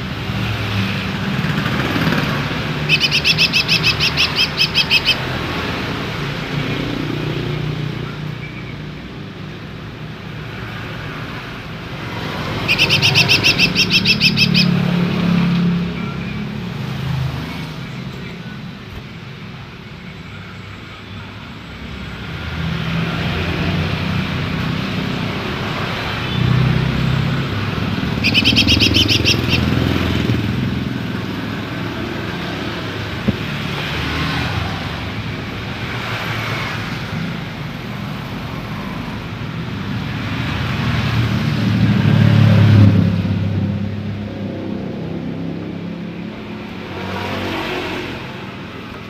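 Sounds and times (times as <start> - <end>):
passing vehicle engines rumbling: 0.0 - 49.0
bird chattering trill: 1.6 - 5.9, 12.4 - 14.9, 27.6 - 30.2
faint high bird calls: 2.7 - 5.6, 12.5 - 14.8, 28.1 - 30.0.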